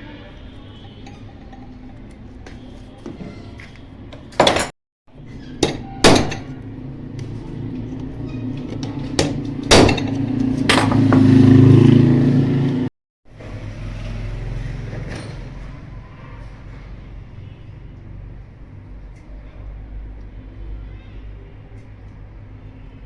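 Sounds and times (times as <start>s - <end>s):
sharp knocks: 9.1s - 11.6s.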